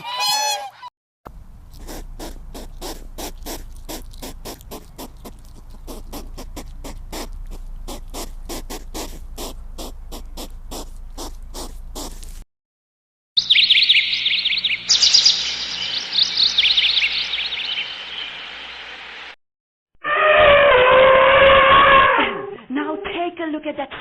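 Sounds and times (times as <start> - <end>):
animal rapid short calls: 1.8 - 12.4
steady low hum: 14.0 - 19.4.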